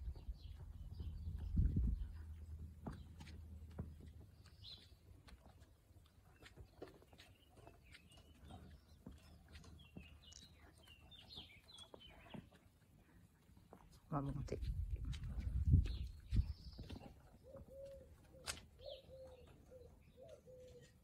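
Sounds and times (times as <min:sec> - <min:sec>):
footsteps on paving: 0:14.3 - 0:18.7.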